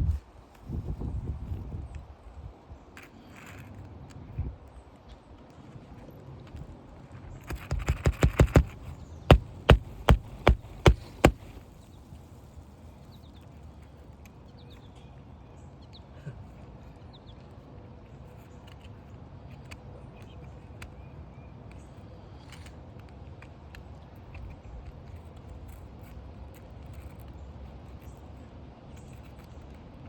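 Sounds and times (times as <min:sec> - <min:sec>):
hammer tapping on roof: 0:07.5 - 0:11.6
hard hammer blows: 0:07.5 - 0:11.6.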